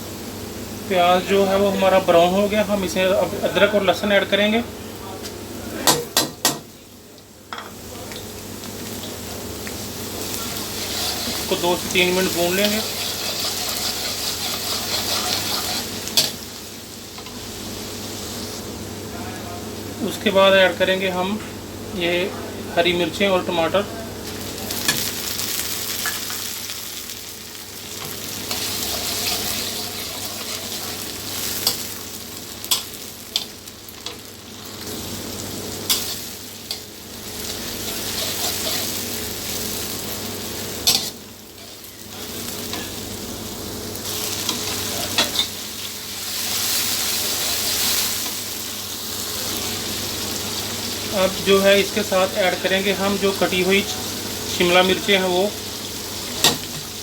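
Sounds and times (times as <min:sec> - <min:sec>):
vegetables sizzling in hot oil: 0:00.0 - 0:21.1, 0:23.0 - 0:57.0
spoon scraping a pan: 0:10.4 - 0:11.6, 0:12.2 - 0:16.4, 0:28.0 - 0:31.8, 0:37.8 - 0:39.1.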